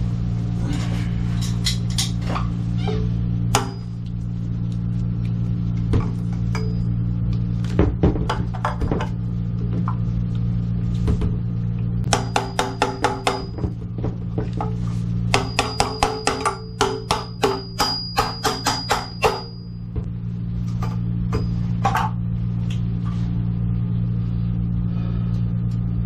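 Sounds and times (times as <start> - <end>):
steady low hum: 0.0 - 26.0
ringing metallic taps: 15.4 - 19.7.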